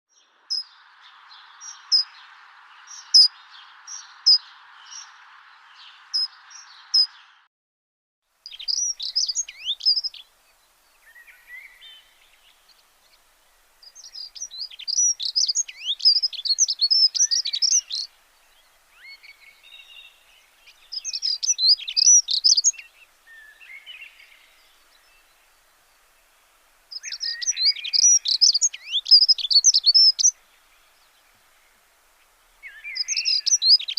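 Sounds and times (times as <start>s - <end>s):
small birds chirping: 0.1s - 7.5s, 8.4s - 33.9s
steady hiss: 8.3s - 33.9s.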